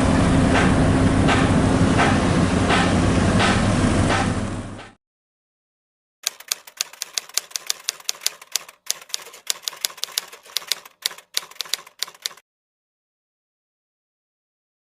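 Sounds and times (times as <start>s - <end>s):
typewriter key clicks: 6.2s - 12.4s.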